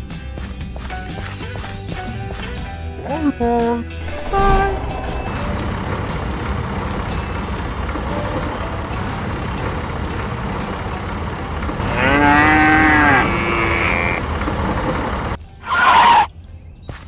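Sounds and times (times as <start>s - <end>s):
low engine-like rumble: 4.0s - 15.4s
cow mooing: 11.8s - 14.2s.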